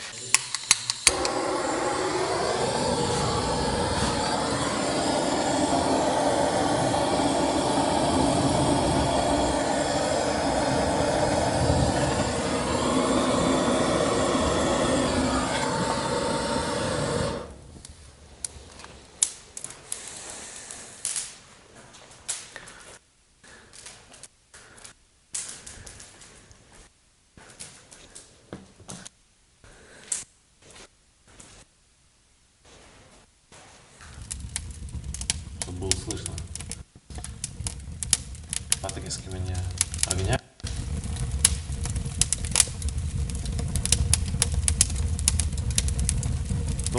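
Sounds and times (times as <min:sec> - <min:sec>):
sharp pops from fire: 0:00.0 - 0:21.4, 0:22.2 - 0:22.8, 0:23.5 - 0:26.6, 0:34.0 - 0:46.9
wood fire crackling: 0:00.0 - 0:28.8, 0:33.6 - 0:46.9
loud steady rushing noise: 0:01.1 - 0:17.6.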